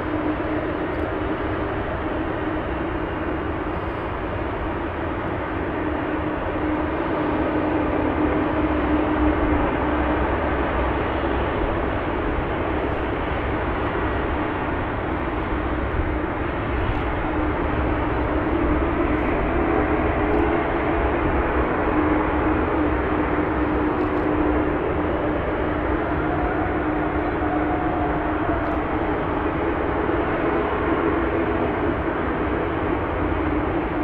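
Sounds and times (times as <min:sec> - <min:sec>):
jet engines running: 0:00.0 - 0:34.0.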